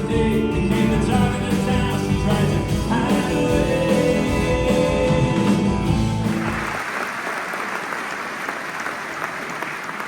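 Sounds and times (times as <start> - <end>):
live band music: 0.0 - 6.8
audience applause: 6.2 - 10.0.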